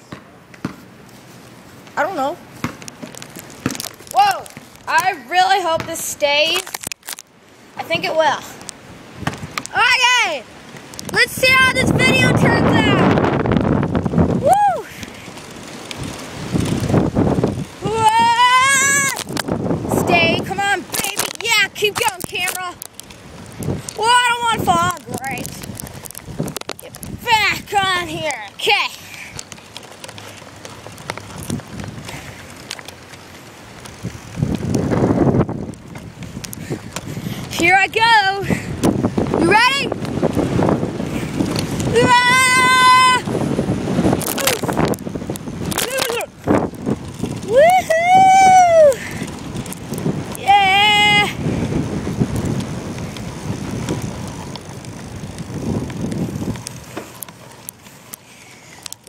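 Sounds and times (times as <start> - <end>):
road rumble: 0.0 - 59.0
wind buffeting: 2.0 - 59.0
bicycle clicks and knocks: 2.6 - 5.1, 5.9 - 7.3, 14.9 - 19.6, 20.7 - 59.0.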